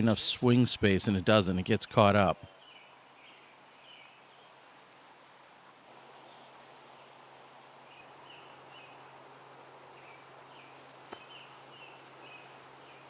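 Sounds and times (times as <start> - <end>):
low background hiss: 0.0 - 13.0.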